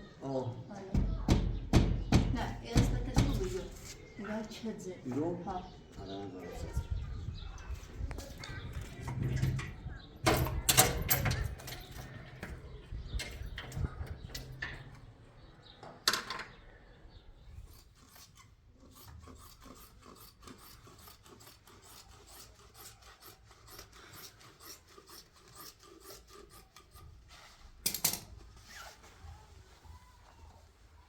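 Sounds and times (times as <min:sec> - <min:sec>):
hand tool scraping a surface: 0:17.6 - 0:27.2.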